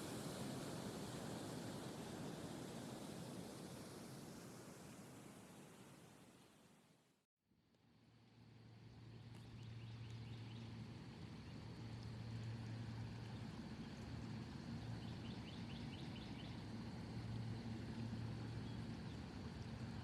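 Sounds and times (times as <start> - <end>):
low hum of distant traffic: 8.0 - 20.0.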